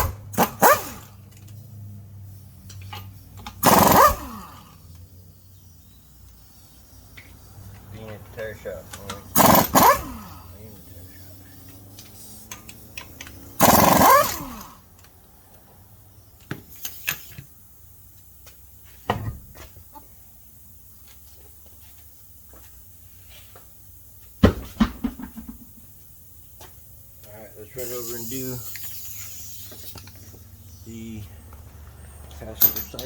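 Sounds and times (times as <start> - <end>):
impact wrench burst: 0.0 - 1.2, 3.5 - 4.8, 9.2 - 10.6, 13.4 - 14.9, 24.4 - 25.8
metallic clinks and knocks: 32.5 - 33.0.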